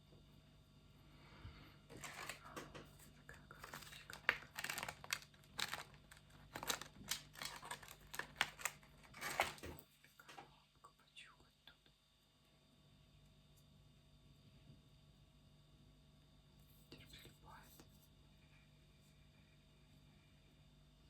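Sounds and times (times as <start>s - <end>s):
crisp scratching and tapping: 1.9s - 9.8s.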